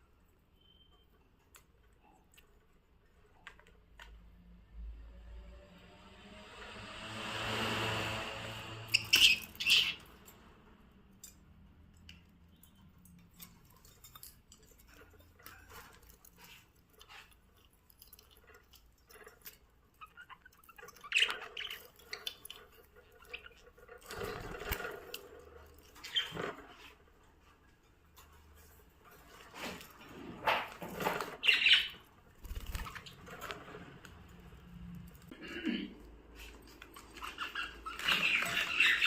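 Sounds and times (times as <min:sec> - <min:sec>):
budgies pecking at food: 0:08.9 - 0:10.1, 0:12.0 - 0:26.9, 0:29.2 - 0:35.4, 0:36.4 - 0:39.0.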